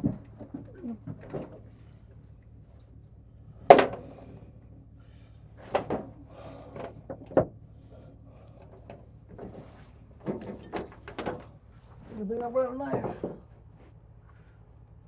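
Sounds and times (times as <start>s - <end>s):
soft clunks and knocks: 0.0s - 2.0s, 5.6s - 7.6s, 8.6s - 14.0s.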